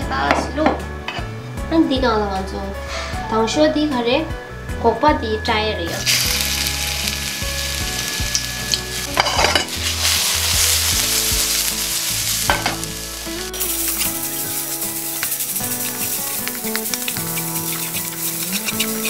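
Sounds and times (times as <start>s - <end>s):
garlic sizzling in oil: 5.9s - 19.0s
wooden spatula scraping a pan: 13.6s - 19.0s.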